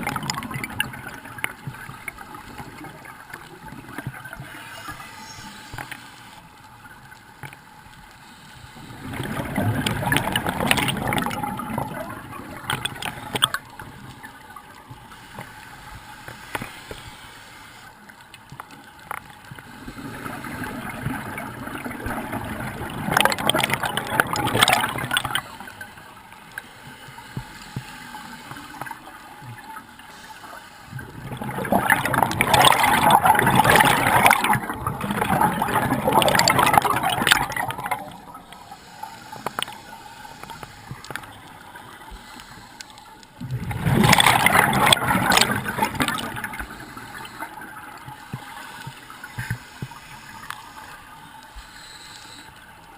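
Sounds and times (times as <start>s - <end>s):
water gurgling and bubbling: 0.0s - 5.7s, 8.8s - 14.2s, 19.8s - 25.8s, 30.9s - 42.1s, 43.4s - 50.6s
water sloshing: 8.8s - 17.2s, 26.9s - 51.8s.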